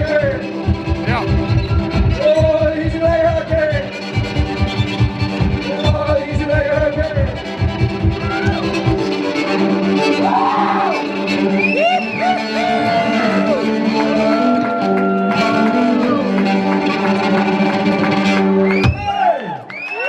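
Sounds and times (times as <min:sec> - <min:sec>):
voices singing and wailing: 0:10.1 - 0:16.2.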